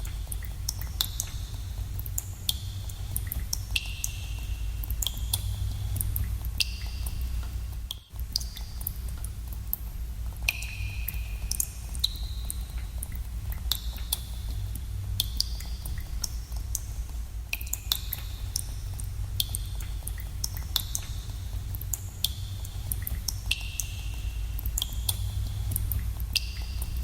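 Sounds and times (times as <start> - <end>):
steady low rumble: 0.0 - 27.0
water drops plinking in cave pool: 0.1 - 9.3, 10.5 - 16.9, 17.5 - 27.0.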